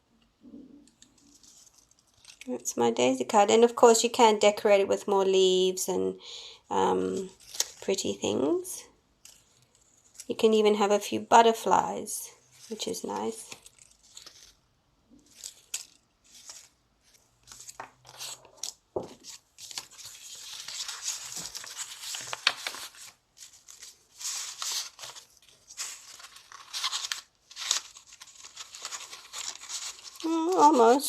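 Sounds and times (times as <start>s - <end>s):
paper rustling and crinkling: 1.0s - 2.5s, 7.0s - 8.2s, 9.2s - 10.3s, 12.4s - 31.0s.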